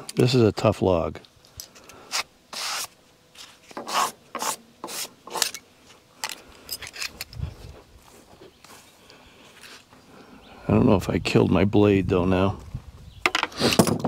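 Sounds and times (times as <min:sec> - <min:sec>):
scraping on wood: 0:02.1 - 0:05.6.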